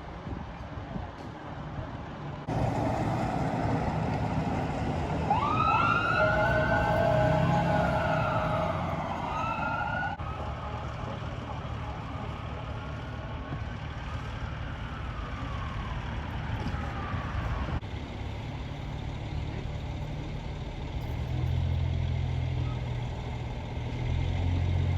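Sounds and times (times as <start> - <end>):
large vehicle engine humming: 0.1 - 24.9
emergency vehicle siren: 2.5 - 17.8.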